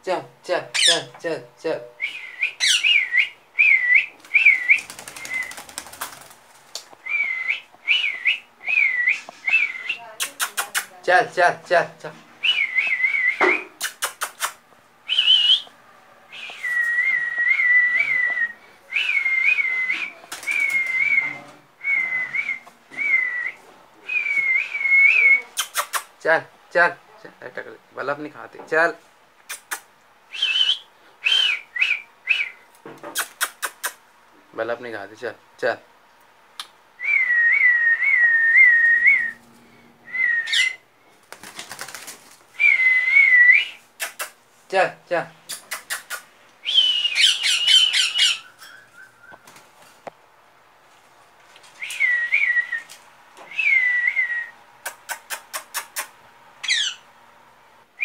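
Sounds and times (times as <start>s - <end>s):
person whistling: 16.4s - 25.5s, 46.6s - 47.3s
person whistling a tune: 46.6s - 47.2s.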